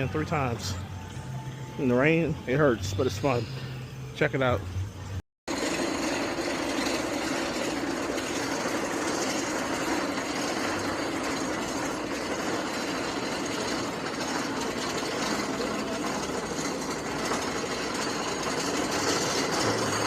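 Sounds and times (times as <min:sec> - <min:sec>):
roller coaster running on track: 0:05.5 - 0:20.0.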